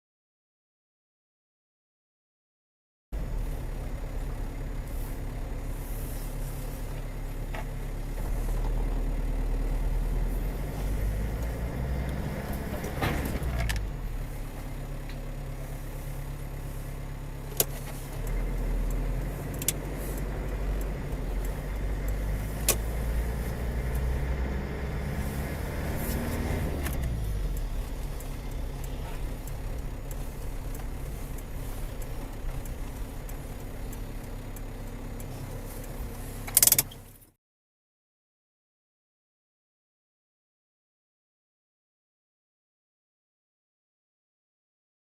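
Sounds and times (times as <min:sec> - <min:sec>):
car engine and road noise: 0:03.1 - 0:37.4
sharp clicks: 0:17.5 - 0:24.2, 0:25.4 - 0:37.3.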